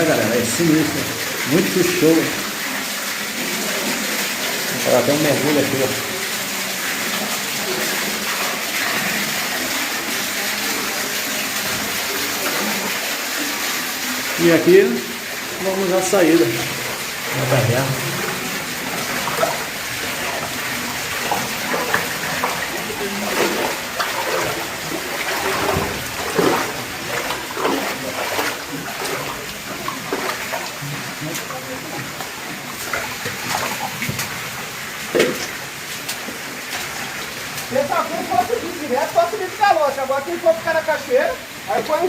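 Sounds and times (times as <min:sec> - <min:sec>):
water rushing through cave: 0:00.0 - 0:42.0.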